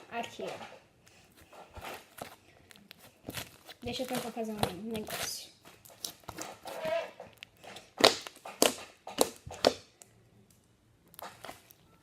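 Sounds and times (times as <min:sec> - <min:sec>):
slime squishing: 0:01.3 - 0:10.2, 0:11.0 - 0:12.0
sharp pops of slime: 0:08.0 - 0:09.9.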